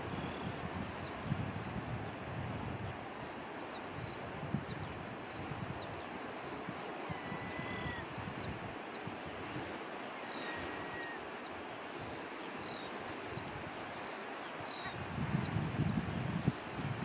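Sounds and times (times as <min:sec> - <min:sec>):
wind buffeting microphone: 0:00.0 - 0:03.2, 0:03.9 - 0:09.7, 0:14.8 - 0:17.0
wind and surf: 0:00.0 - 0:17.0.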